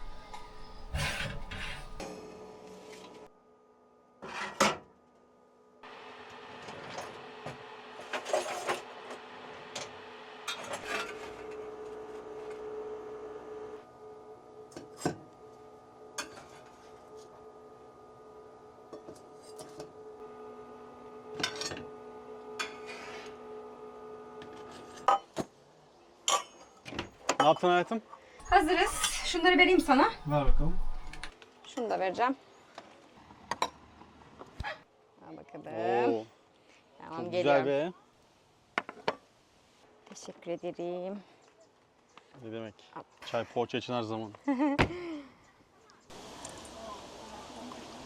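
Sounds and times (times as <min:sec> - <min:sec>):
dishes and cutlery clinking: 0:00.0 - 0:02.0, 0:28.4 - 0:31.3
steady hum: 0:00.0 - 0:02.0, 0:28.4 - 0:31.3.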